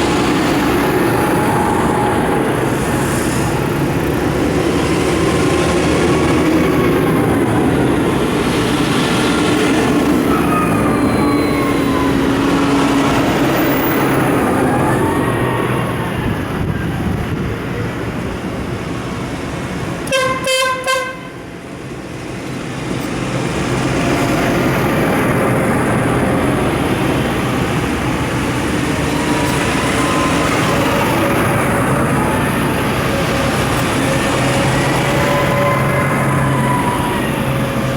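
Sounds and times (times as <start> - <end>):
tractors driving past: 0.0 - 20.1, 21.5 - 37.9
horn sounding: 20.0 - 21.5.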